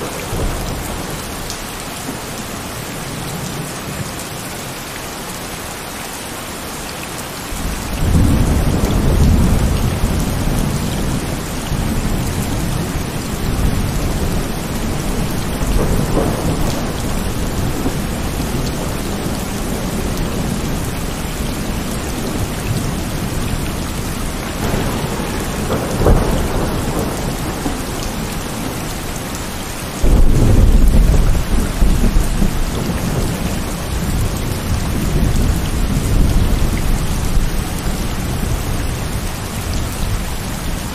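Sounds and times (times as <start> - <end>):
heavy rain: 0.0 - 40.9
rolling thunder: 7.5 - 29.4, 30.0 - 40.9
loud thunderclap: 7.6 - 20.9, 24.4 - 29.0, 30.0 - 37.5.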